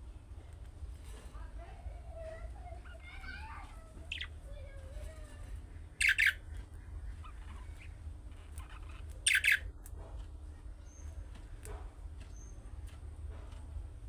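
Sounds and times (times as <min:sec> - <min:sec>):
faint budgerigar chatter: 0:01.0 - 0:09.7, 0:10.4 - 0:13.0
budgerigar squawks: 0:06.0 - 0:06.4, 0:08.6 - 0:09.6.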